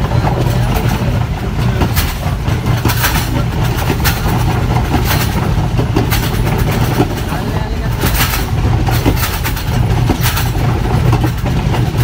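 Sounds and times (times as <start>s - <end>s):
diesel train engine drone: 0.0s - 12.0s
train wheels clicking over rail joints: 0.0s - 12.0s.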